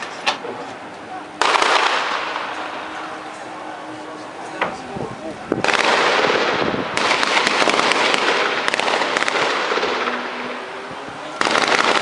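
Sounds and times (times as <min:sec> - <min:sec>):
gunfire crackling: 0:01.4 - 0:02.9, 0:05.6 - 0:10.6, 0:11.4 - 0:12.0.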